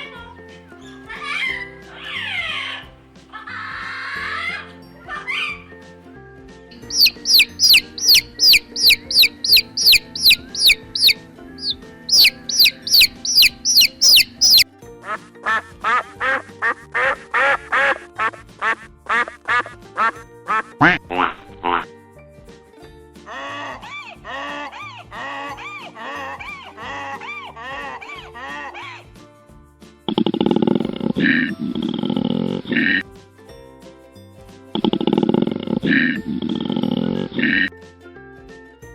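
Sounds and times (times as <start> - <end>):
background music: 0.0 - 38.9
high falling chirps: 6.8 - 14.6
duck quacking: 6.9 - 14.6, 15.5 - 21.8.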